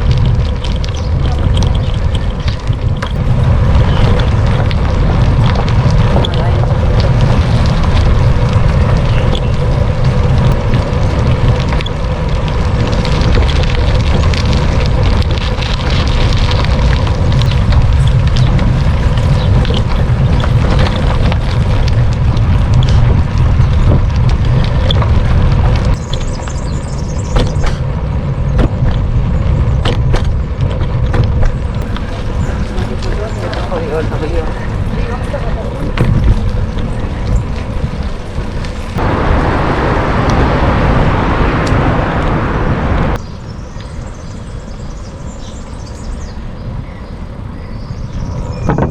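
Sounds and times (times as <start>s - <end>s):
bicycle knocks and rattles: 0.0s - 39.0s
city traffic: 0.0s - 48.9s
wind buffeting microphone: 0.0s - 48.9s.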